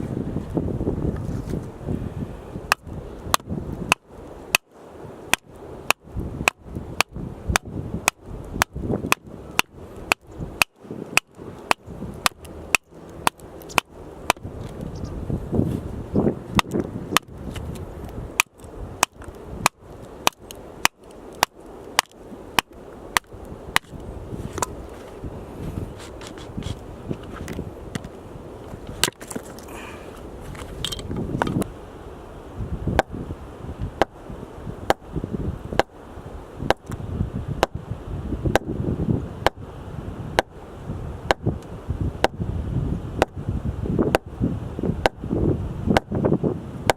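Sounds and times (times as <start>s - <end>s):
axe chopping firewood: 5.3s - 14.5s, 18.4s - 24.0s, 36.7s - 37.0s, 37.6s - 37.8s, 38.5s - 38.7s, 45.0s - 45.2s, 45.9s - 46.2s.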